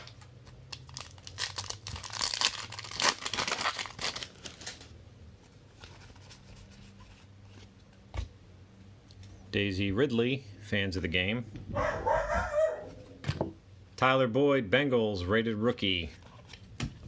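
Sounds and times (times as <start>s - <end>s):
wrapper being torn and crinkled: 0.5s - 5.0s.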